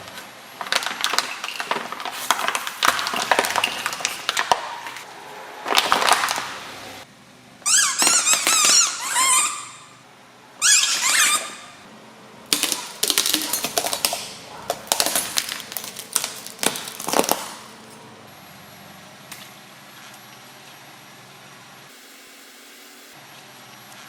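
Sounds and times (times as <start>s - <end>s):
objects crushed under car tyre: 0.6s - 6.6s, 12.5s - 17.8s
squeaky chirp: 7.6s - 10.0s, 10.6s - 11.8s.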